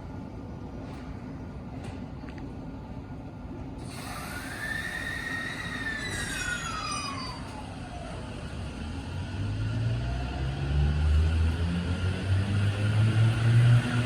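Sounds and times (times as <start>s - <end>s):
train rolling noise: 0.0s - 14.0s
electric train motor whine: 3.8s - 14.0s.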